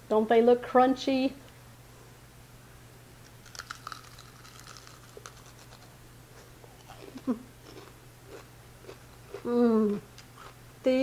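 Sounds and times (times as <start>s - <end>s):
crunchy chewing: 3.2s - 10.6s.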